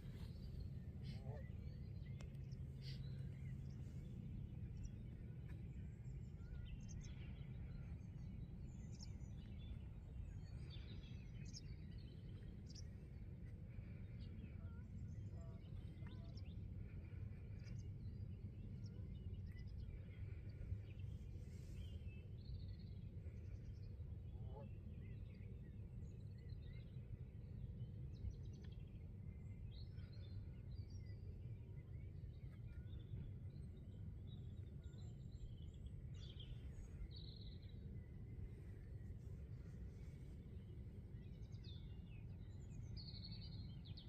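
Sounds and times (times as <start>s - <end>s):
low background rumble: 0.0s - 44.0s.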